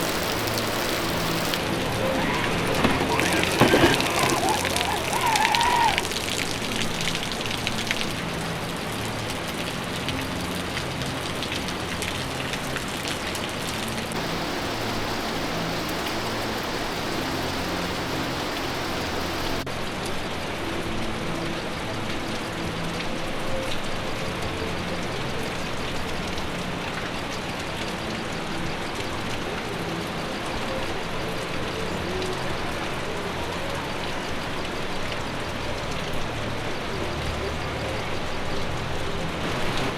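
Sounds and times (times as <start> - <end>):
waterfall rushing: 0.0 - 19.9, 37.9 - 39.9.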